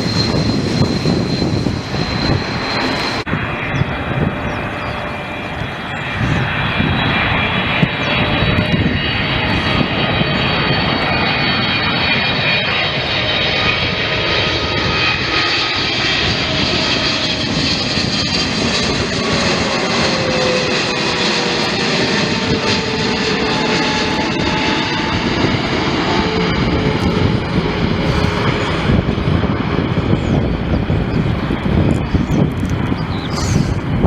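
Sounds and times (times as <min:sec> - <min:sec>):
aircraft engine roar: 0:00.0 - 0:34.0.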